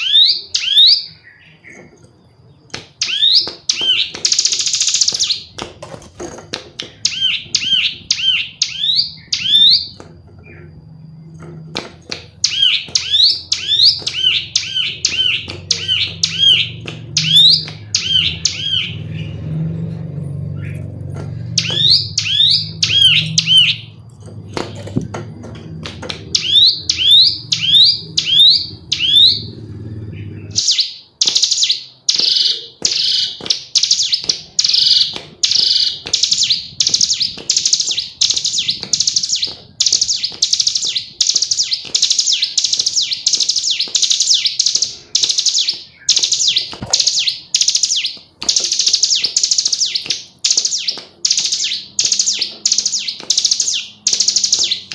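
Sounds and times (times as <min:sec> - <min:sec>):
bird calling with chirps and buzzy notes: 0:00.0 - 0:05.6, 0:06.8 - 0:54.9
low hum: 0:14.4 - 0:30.6.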